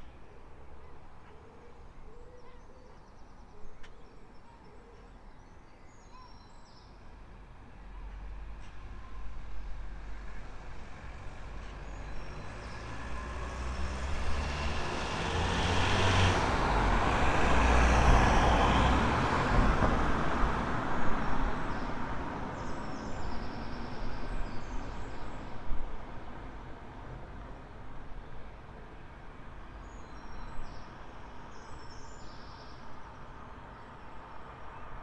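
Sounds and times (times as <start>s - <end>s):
road vehicle passing by: 9.6s - 23.4s.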